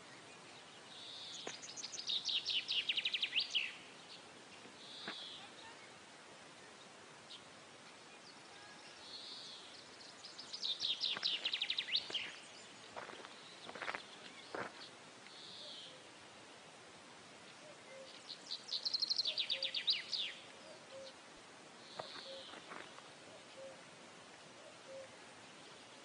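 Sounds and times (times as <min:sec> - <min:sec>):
small bird singing high chirps: 0:00.0 - 0:06.0, 0:08.2 - 0:14.7, 0:17.7 - 0:21.2, 0:21.8 - 0:22.7
faint steady hiss: 0:00.0 - 0:26.0.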